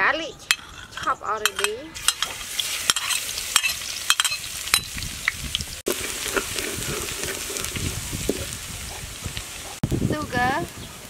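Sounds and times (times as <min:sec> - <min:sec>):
metal ladle scraping wok: 0:00.4 - 0:05.0, 0:05.9 - 0:09.0
garlic sizzling in hot oil: 0:01.5 - 0:11.0.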